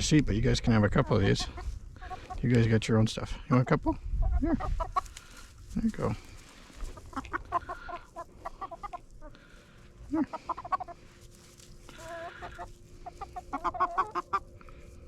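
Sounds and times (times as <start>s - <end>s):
hens clucking: 0.0s - 15.0s
hen drawn-out call: 1.0s - 2.4s, 7.0s - 11.1s, 11.9s - 14.5s.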